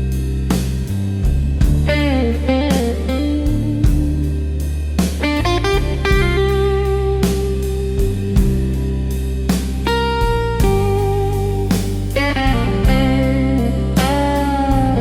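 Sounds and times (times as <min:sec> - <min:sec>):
bass line: 0:00.0 - 0:15.0
drum beat: 0:01.3 - 0:04.3, 0:05.0 - 0:06.7, 0:09.8 - 0:13.2
electric guitar blues solo: 0:01.8 - 0:08.8, 0:09.8 - 0:15.0.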